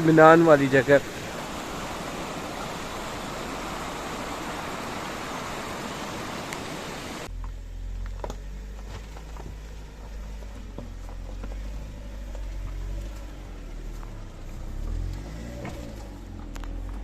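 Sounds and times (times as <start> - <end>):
stream water rushing: 0.0 - 7.3
car rumble: 0.0 - 17.0.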